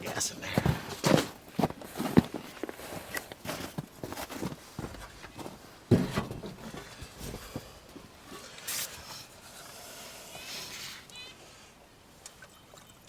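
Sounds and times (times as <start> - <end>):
handling knocks and rustles: 0.6 - 9.4.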